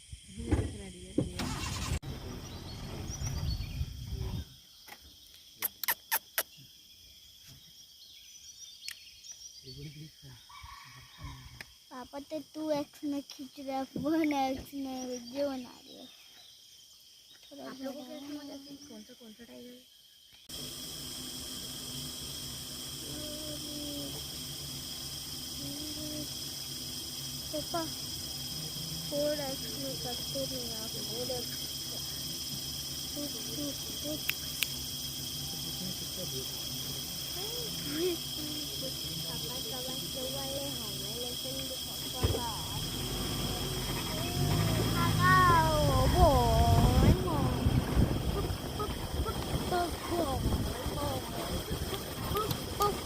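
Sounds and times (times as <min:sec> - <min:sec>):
insects chirring: 0:00.0 - 0:53.0
low hum: 0:42.5 - 0:53.0
low rumble: 0:42.6 - 0:53.0.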